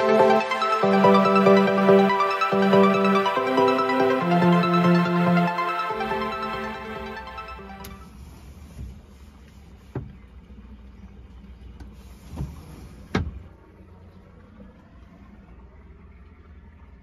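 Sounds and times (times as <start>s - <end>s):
low steady rumble: 1.0s - 17.0s.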